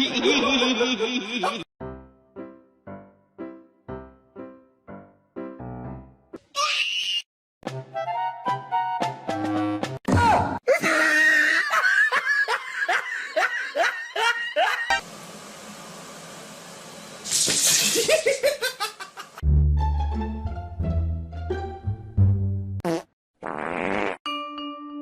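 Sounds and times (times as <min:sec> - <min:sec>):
music: 0:01.8 - 0:06.4, 0:07.6 - 0:10.4, 0:19.4 - 0:22.8, 0:24.3 - 0:25.0.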